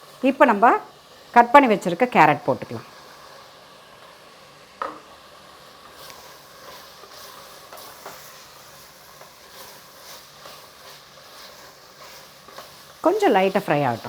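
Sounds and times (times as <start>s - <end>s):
faint sizzling: 0.0s - 14.0s
spoon scraping in pan: 4.8s - 14.0s.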